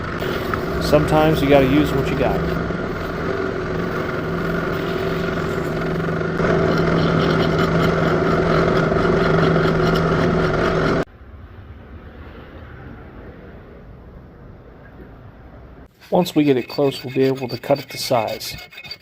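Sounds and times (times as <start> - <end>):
small electric motor running: 0.0 - 11.1.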